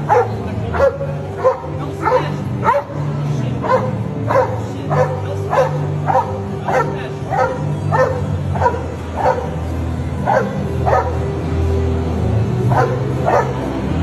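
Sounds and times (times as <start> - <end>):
dog barking: 0.0 - 11.3, 12.7 - 13.7.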